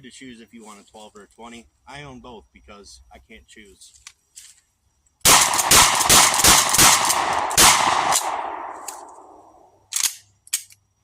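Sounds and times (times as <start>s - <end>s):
shotgun shots: 5.2s - 9.4s
gunshot echo: 5.3s - 9.4s.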